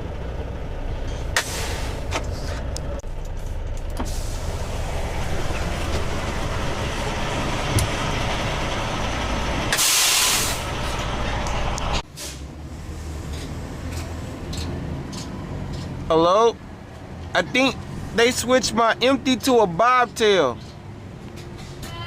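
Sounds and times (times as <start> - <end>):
truck engine rumbling: 0.0 - 22.0
air brake hiss: 1.4 - 2.5, 4.0 - 4.7, 9.7 - 10.7, 12.1 - 13.1.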